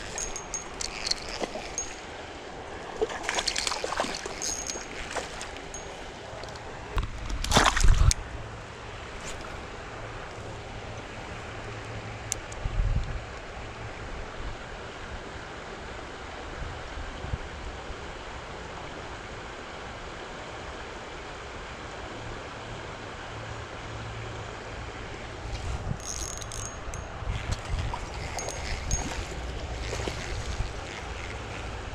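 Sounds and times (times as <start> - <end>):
sharp clicking and rattling: 0.0 - 2.1, 3.2 - 6.6, 26.0 - 31.7
creek water flowing: 0.0 - 11.6, 24.6 - 31.9
wind buffeting microphone: 25.4 - 31.9.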